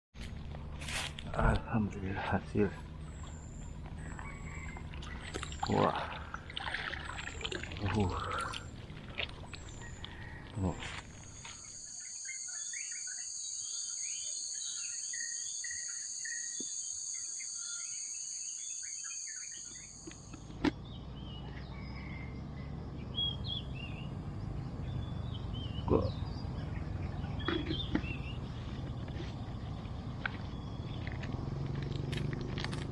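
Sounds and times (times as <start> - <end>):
birds chirping: 1.3 - 32.2
high-pitched insect drone: 11.2 - 20.4.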